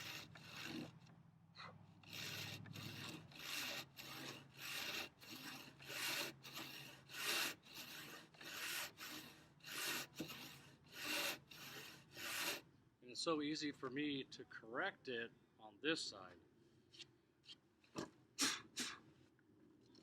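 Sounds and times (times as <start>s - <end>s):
handsaw cutting wood: 0.0s - 1.1s, 2.0s - 12.7s.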